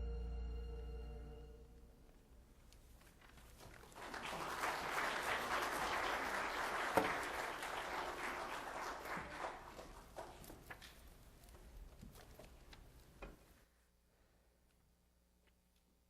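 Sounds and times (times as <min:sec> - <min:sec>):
congregation applauding: 0:03.6 - 0:10.4.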